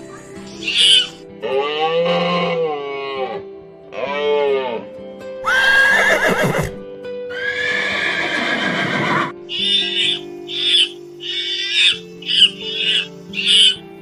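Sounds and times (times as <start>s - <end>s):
background music: 0.0s - 14.0s
horse neighing and whinnying: 5.4s - 13.8s.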